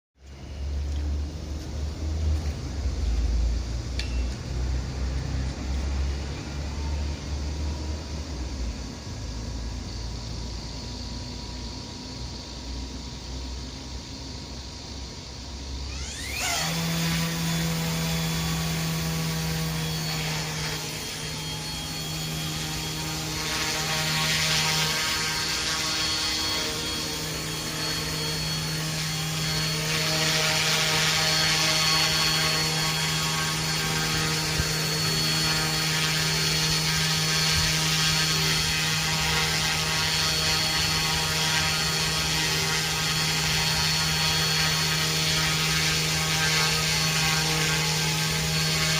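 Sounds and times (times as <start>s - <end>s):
model helicopter motor whine: 15.6s - 48.9s.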